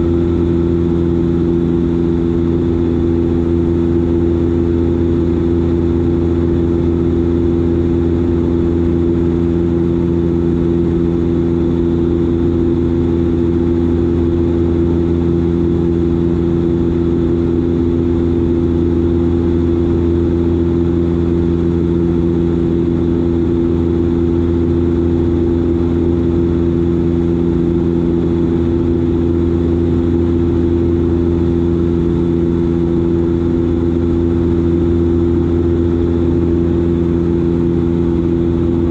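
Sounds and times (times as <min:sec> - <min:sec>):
turboprop engines drone in cabin: 0:00.0 - 0:38.9.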